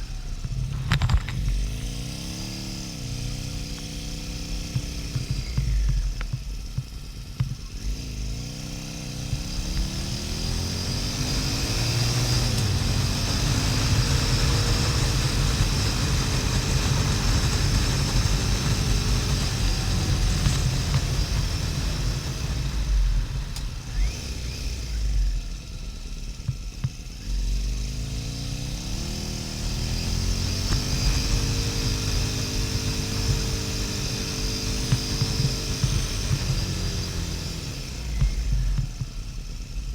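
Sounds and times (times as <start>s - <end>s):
motorcycle engine while riding: 0.0s - 39.9s
wind rush on microphone: 12.7s - 24.1s.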